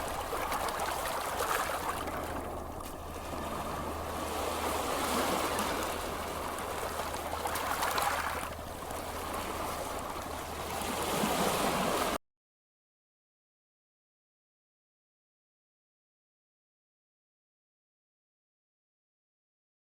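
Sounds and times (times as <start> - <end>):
ocean surf washing onto beach: 0.0 - 12.2.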